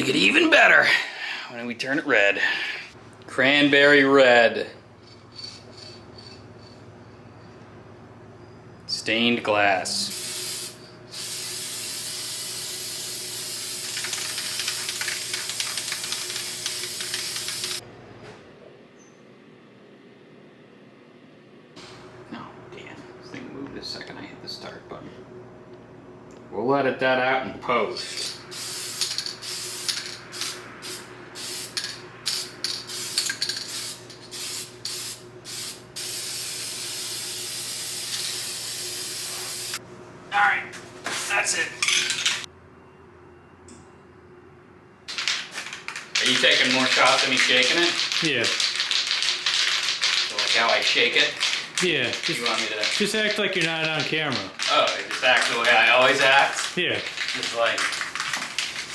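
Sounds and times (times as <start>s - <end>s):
spray paint can hissing: 10.1s - 17.8s, 28.5s - 39.8s, 46.1s - 51.6s.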